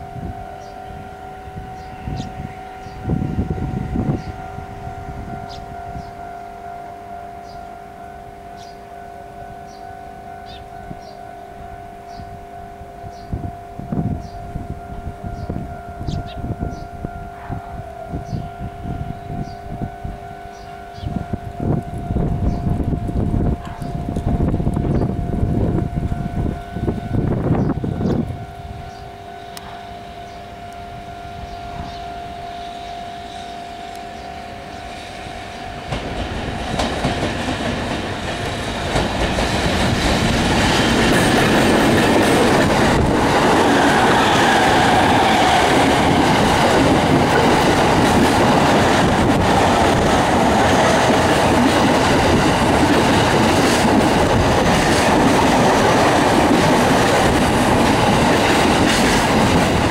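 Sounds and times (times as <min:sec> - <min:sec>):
wheels rushing on rails: 0:00.0 - 0:07.7, 0:08.5 - 0:59.9
two steady tones: 0:00.0 - 0:36.9
electric train passing: 0:00.0 - 0:59.9
rail joint clicks: 0:35.6 - 0:59.9.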